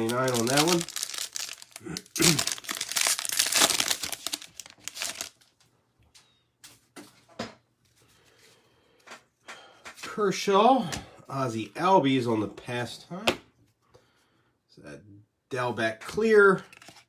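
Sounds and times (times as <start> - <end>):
cards rustling and tapping: 0.0 - 5.4
foil wrapper tearing and crinkling: 0.0 - 5.5.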